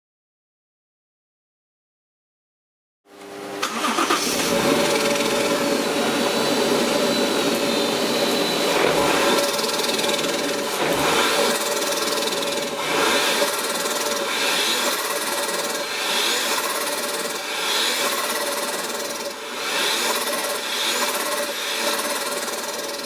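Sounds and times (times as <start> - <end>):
car engine revving: 3.6 - 22.6
supercharger whine: 3.6 - 23.0.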